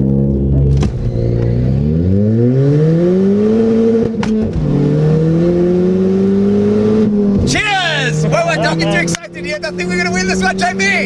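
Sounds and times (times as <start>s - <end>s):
car engine accelerating hard: 0.0s - 11.0s
gear shift click: 4.0s - 4.6s.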